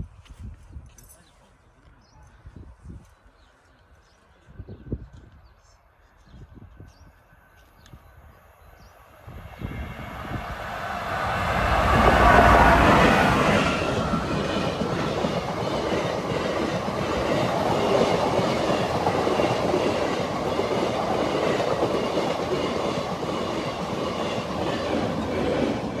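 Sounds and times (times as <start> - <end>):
train wheels on rails: 9.1 - 26.0.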